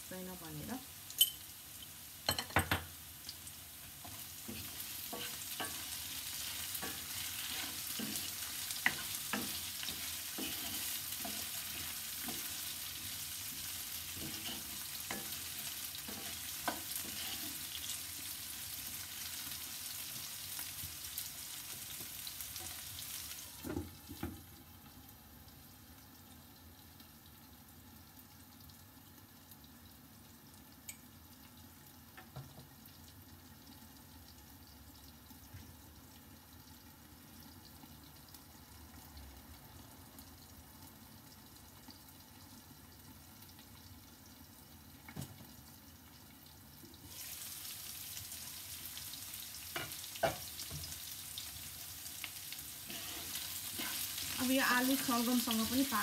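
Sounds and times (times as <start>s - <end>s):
vegetables sizzling in oil: 0.0s - 56.0s
spatula scraping and tapping pan: 4.0s - 17.9s, 49.7s - 50.9s, 52.9s - 54.3s.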